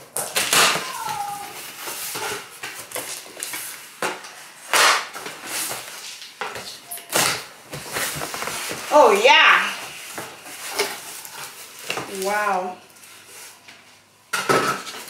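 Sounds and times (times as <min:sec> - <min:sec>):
cardboard rustling and scraping: 0:05.2 - 0:12.0.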